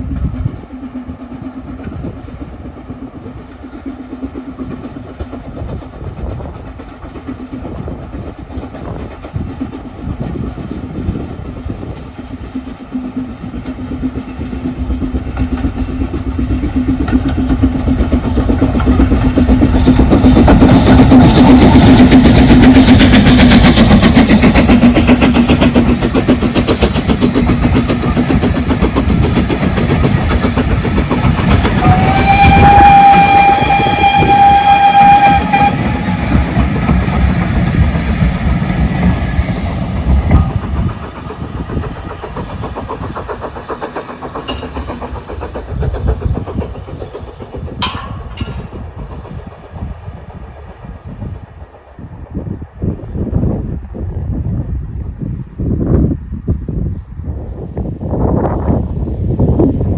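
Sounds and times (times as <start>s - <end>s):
train wheels clattering over rail joints: 0.0s - 53.9s
steam locomotive whistle: 31.4s - 37.1s.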